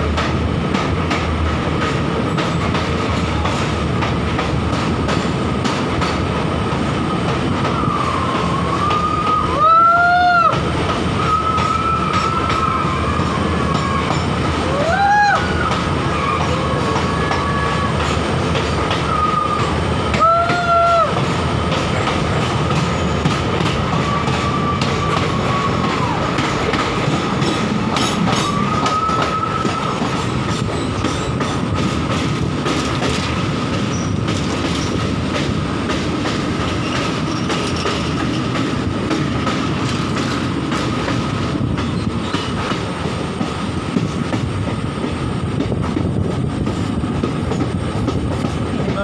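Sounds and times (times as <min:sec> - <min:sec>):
train wheels rumbling over track: 0:00.0 - 0:49.0
high wheel squeal: 0:23.9 - 0:26.2, 0:28.0 - 0:30.2, 0:33.9 - 0:34.2.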